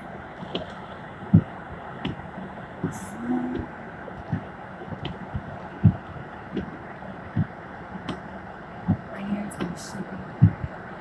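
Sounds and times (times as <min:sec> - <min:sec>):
heavy rain on a car: 0:00.0 - 0:11.0
road and engine noise: 0:00.0 - 0:11.0
dull thuds: 0:01.3 - 0:09.8.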